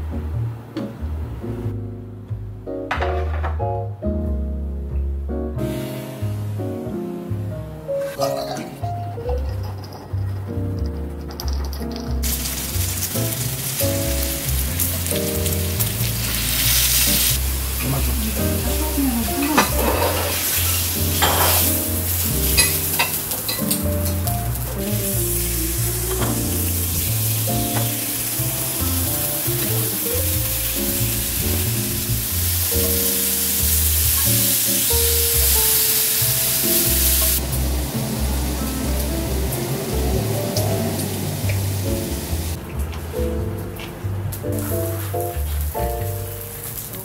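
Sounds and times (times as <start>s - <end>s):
background music: 0.0s - 47.0s
pork sizzling in a pan: 5.7s - 7.0s, 8.0s - 8.9s, 11.7s - 42.6s, 44.4s - 47.0s.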